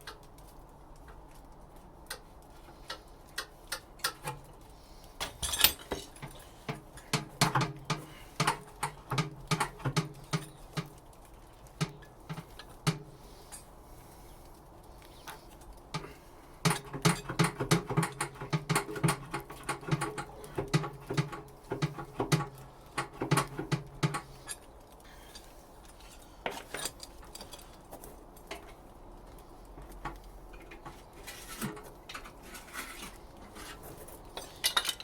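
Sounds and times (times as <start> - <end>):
pry bar knocking on metal: 6.7 - 10.9.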